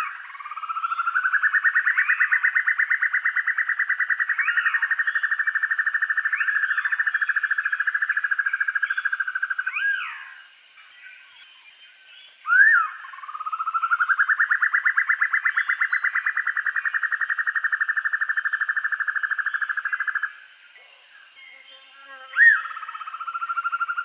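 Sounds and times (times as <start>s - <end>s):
bird whistled notes: 12.5s - 12.9s.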